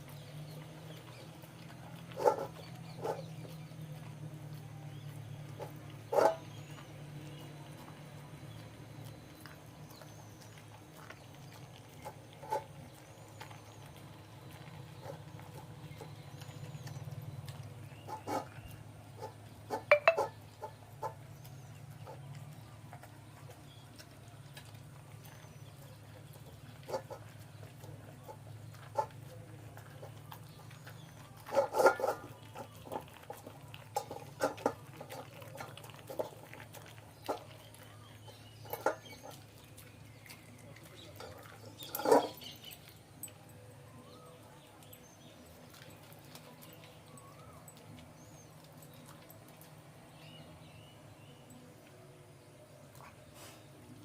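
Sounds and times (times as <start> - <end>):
dog chewing food in bowl: 0.0 - 52.1
small high chirps: 19.9 - 20.3.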